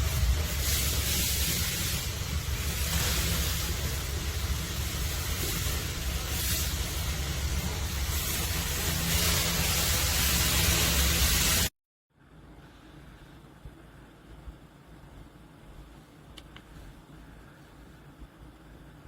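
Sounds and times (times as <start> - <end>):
loud rushing noise with rumble: 0.0 - 11.7.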